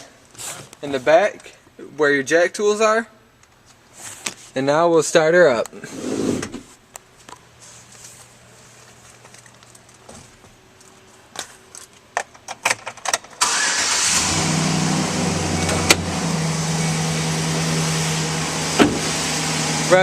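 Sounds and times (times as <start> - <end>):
truck engine starting and idling: 13.4 - 20.0
ignition clicks: 15.5 - 16.2.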